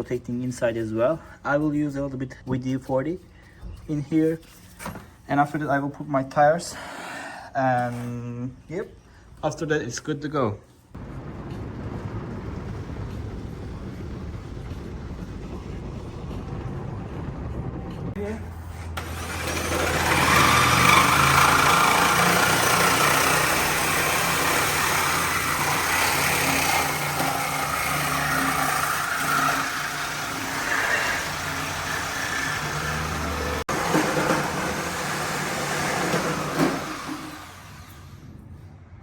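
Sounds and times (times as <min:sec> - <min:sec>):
car engine running: 0:11.0 - 0:18.2.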